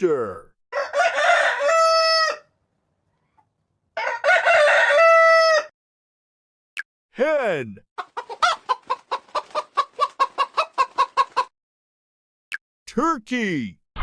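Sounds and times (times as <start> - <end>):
rooster crowing: 0.7 - 2.5, 4.0 - 5.7.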